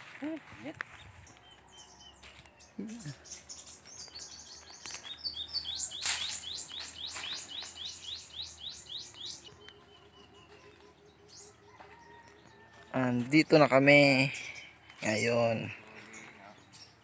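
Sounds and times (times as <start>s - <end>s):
bird singing rising notes: 1.3s - 12.3s.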